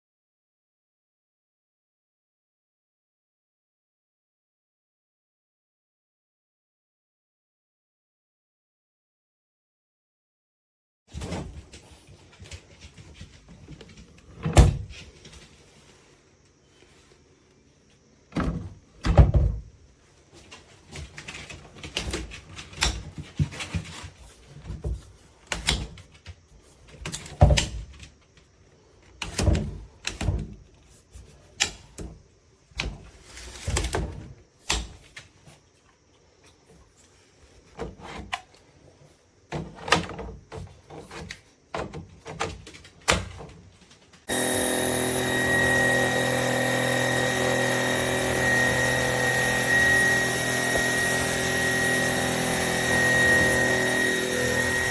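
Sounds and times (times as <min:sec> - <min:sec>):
stick vacuum motor whirring: 0:44.3 - 0:54.9.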